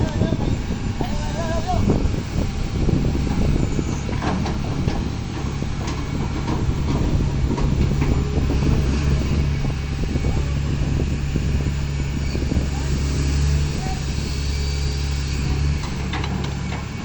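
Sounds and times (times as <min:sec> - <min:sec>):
engine humming: 0:00.0 - 0:17.0
knocks and clatter: 0:03.2 - 0:09.5, 0:15.8 - 0:17.0.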